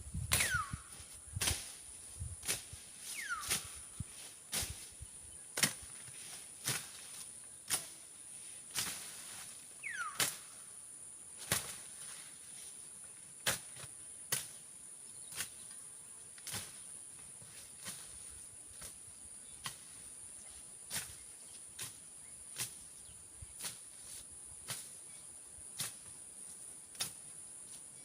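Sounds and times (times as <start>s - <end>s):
blade slashing through brush: 1.4s - 1.8s, 5.6s - 5.9s, 6.6s - 7.1s, 11.4s - 11.9s.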